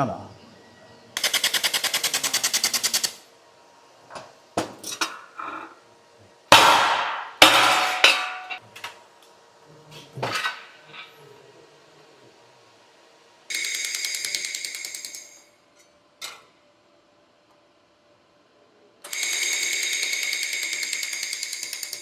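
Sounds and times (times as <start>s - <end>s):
metal knocks: 6.5s - 8.6s
metallic clatters with ringing: 6.5s - 8.6s.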